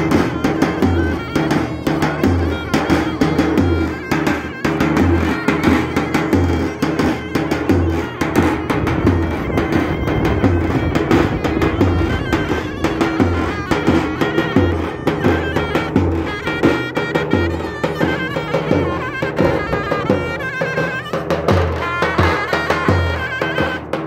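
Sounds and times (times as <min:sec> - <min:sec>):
shrill double-reed melody: 0:00.0 - 0:24.0
deep bass drum beats: 0:06.3 - 0:16.4.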